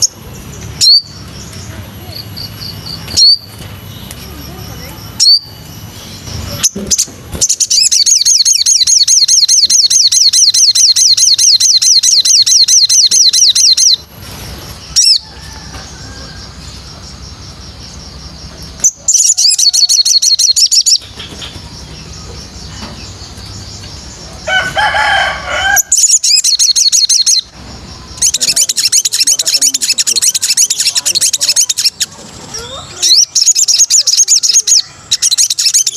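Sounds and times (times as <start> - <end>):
songbird singing high notes: 6.5 - 14.1, 16.7 - 24.2, 25.4 - 35.9.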